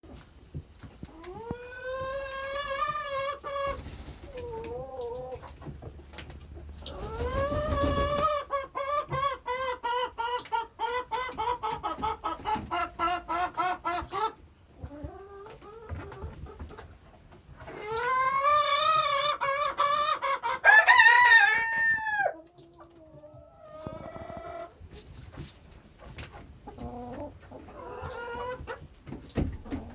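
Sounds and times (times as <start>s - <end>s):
chickens clucking: 0.1s - 29.9s
rooster crowing: 20.6s - 22.4s.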